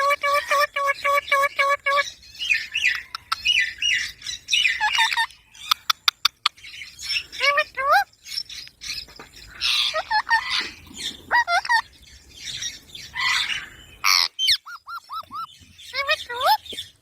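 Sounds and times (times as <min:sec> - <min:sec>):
parrot squawking and chirping: 0:00.0 - 0:17.0.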